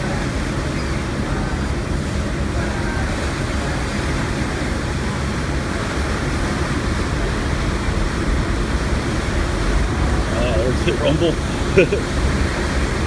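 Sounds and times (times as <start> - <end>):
steam engines rumbling: 9.2 - 12.2.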